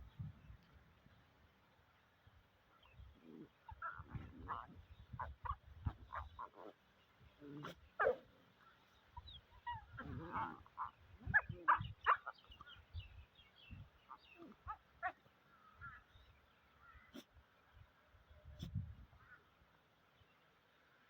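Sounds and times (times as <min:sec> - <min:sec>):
dog calling: 0:03.3 - 0:06.8, 0:07.6 - 0:08.3, 0:09.2 - 0:12.5.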